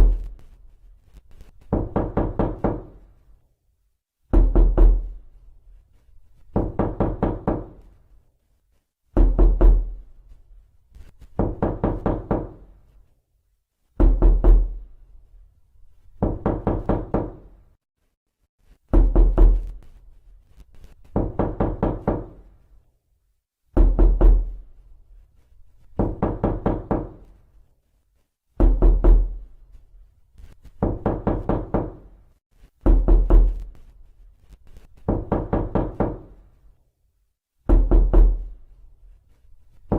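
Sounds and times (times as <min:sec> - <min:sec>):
knocking on a door: 0:01.6 - 0:03.0, 0:04.3 - 0:05.2, 0:06.5 - 0:07.9, 0:09.1 - 0:10.0, 0:11.3 - 0:12.7, 0:14.0 - 0:14.8, 0:16.2 - 0:17.5, 0:18.9 - 0:19.8, 0:21.0 - 0:22.5, 0:23.7 - 0:24.6, 0:26.0 - 0:27.3, 0:28.6 - 0:29.5, 0:30.8 - 0:32.2, 0:32.8 - 0:33.7, 0:35.0 - 0:36.4, 0:37.6 - 0:38.5.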